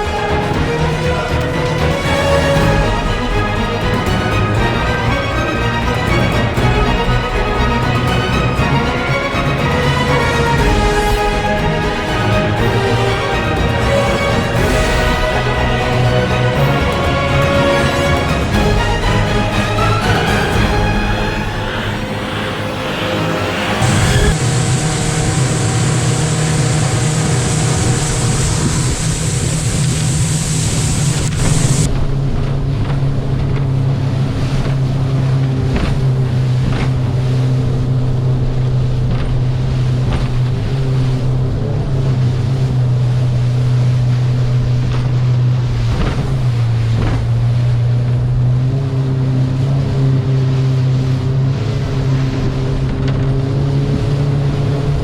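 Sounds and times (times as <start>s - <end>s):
hull slamming wave: 0.0s - 55.0s
motorboat engine running: 0.0s - 55.0s.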